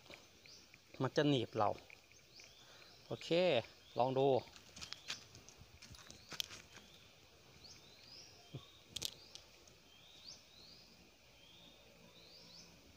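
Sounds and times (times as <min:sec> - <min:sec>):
bird calling: 0:01.7 - 0:05.4.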